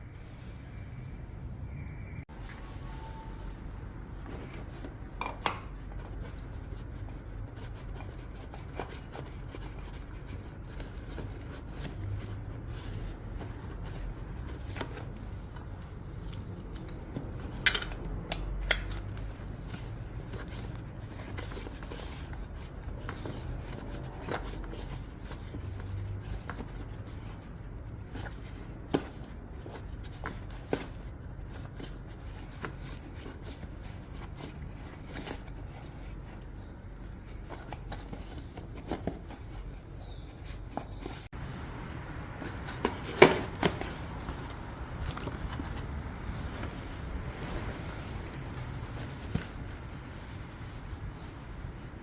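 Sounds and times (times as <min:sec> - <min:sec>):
metal tools clicking and clinking: 0:17.5 - 0:19.1.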